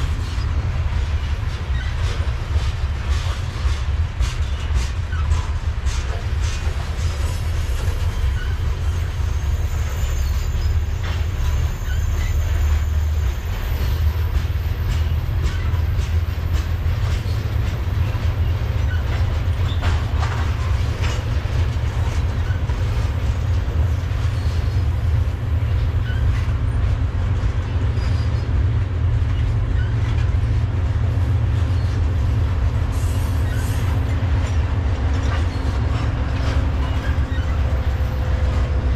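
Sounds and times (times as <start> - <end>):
freight train wheels rumbling: 0.0 - 38.9
wheel squeal: 7.6 - 14.4, 15.0 - 21.3, 25.7 - 26.5, 27.9 - 28.5, 29.8 - 30.3, 33.1 - 34.2, 35.2 - 38.3.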